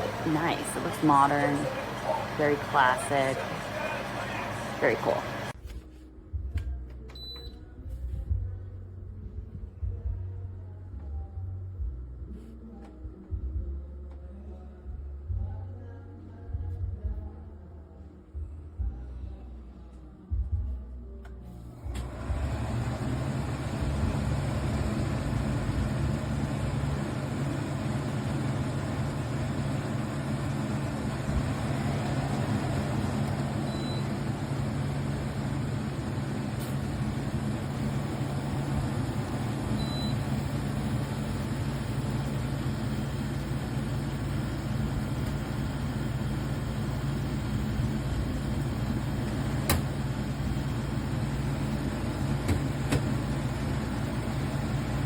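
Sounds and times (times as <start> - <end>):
air conditioner humming: 0.0 - 55.0
faint high beeps: 33.6 - 34.1, 39.8 - 40.3.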